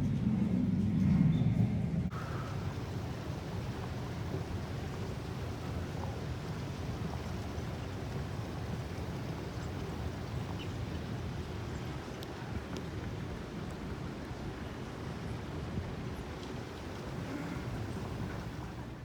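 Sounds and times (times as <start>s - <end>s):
airliner low rumble: 0.0s - 19.0s
even hiss: 2.1s - 11.0s.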